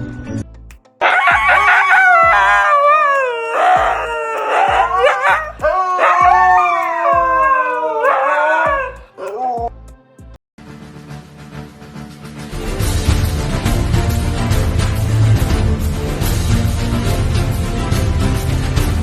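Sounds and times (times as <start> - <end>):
low thumping beat: 0.5 - 10.4
dog howling: 1.0 - 9.7.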